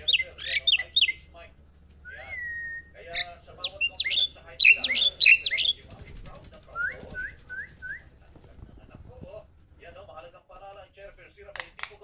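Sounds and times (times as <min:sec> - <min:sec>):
bird chirping: 0:00.0 - 0:01.4, 0:02.0 - 0:08.2
bird whistled notes: 0:02.1 - 0:05.8.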